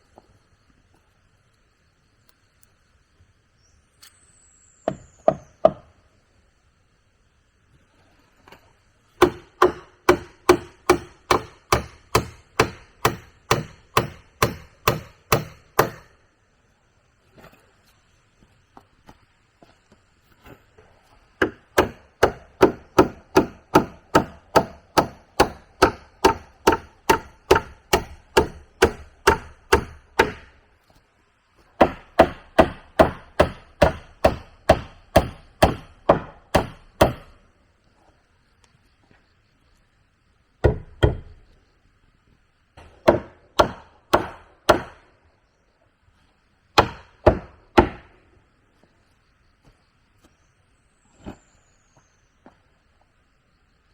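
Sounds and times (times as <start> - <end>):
tool striking wood: 4.8 - 5.9, 9.2 - 16.2, 21.4 - 30.5, 31.8 - 37.4, 40.6 - 41.4, 42.8 - 45.0, 46.8 - 48.1.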